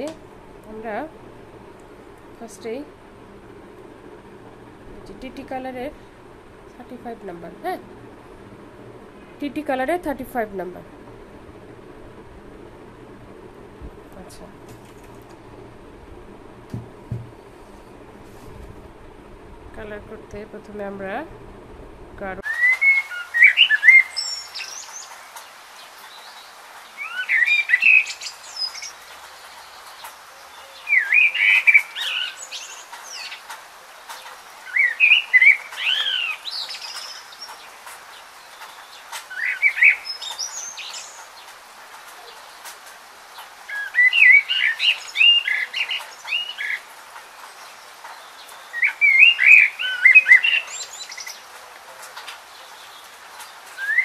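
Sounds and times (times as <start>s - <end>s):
faint steady hiss: 0.0s - 54.0s
small bird chirping: 34.1s - 42.7s, 43.3s - 51.5s.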